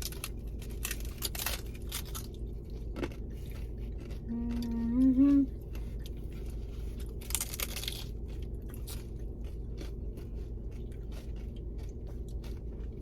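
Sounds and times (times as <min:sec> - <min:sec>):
chewing crunchy taco: 0:00.0 - 0:13.0
person humming mmm: 0:04.3 - 0:05.6.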